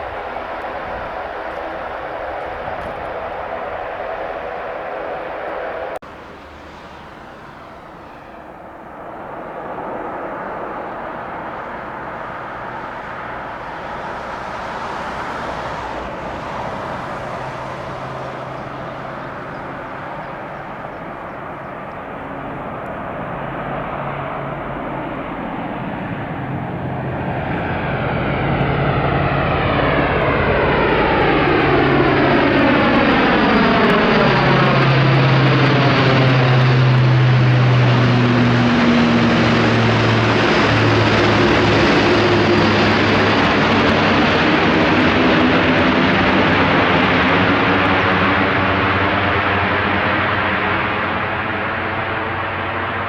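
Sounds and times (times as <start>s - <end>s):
turboprop engines droning: 0.0s - 53.0s.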